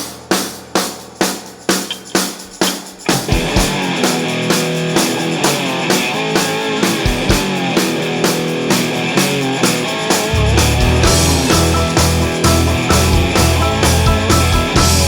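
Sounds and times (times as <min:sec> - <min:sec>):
drums keeping a steady beat: 0:00.0 - 0:15.0
electric guitar lines: 0:01.8 - 0:15.0
heavy low bass: 0:10.4 - 0:15.0.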